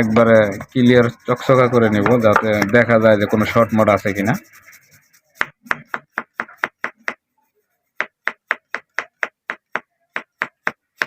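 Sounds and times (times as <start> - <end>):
scrubbing circuit board: 0.0 - 7.0.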